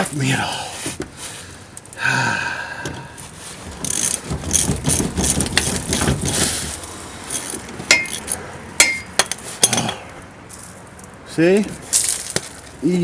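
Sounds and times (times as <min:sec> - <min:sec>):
socket ratchet clicking rapidly: 0:03.8 - 0:06.3
sharp metallic clink: 0:07.4 - 0:10.0.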